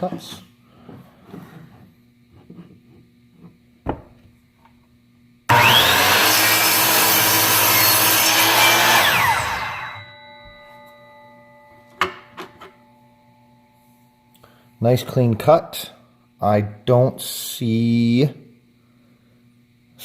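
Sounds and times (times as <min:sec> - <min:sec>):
miter saw cutting wood: 0:05.5 - 0:10.0.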